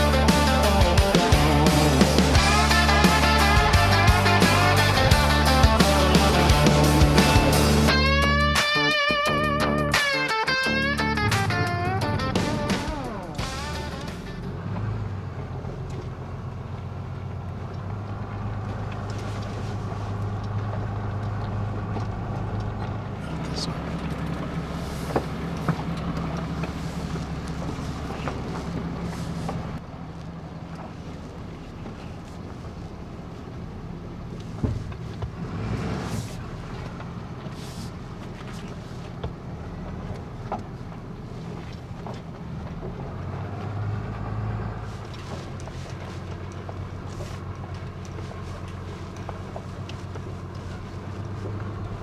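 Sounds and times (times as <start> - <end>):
knocks and rattles: 0.0 - 16.2
truck engine running: 0.0 - 52.0.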